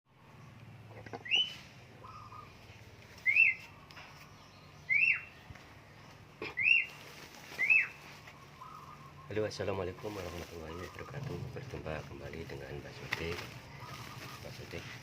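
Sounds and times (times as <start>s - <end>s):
soft low bird call: 0.2s - 5.5s, 6.1s - 11.7s, 13.6s - 15.0s
bulbuls whistled calls: 1.0s - 5.4s, 6.4s - 11.3s, 13.6s - 15.0s.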